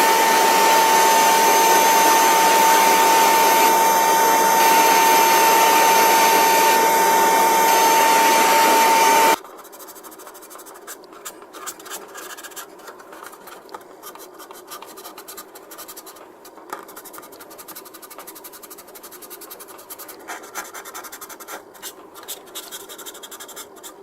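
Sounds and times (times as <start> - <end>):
sanding file scratching plastic: 8.9 - 24.0.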